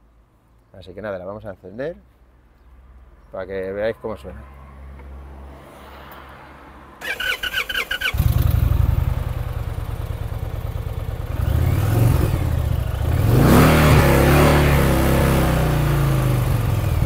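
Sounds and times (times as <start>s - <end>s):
engine revving: 7.0s - 17.0s
motorcycle engine idling: 7.4s - 13.4s, 16.0s - 17.0s.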